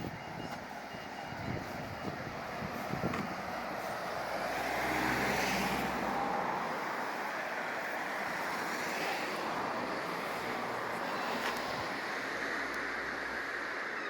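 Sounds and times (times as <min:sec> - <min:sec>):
traffic hiss: 0:01.6 - 0:14.0
vehicle passing: 0:02.6 - 0:07.2.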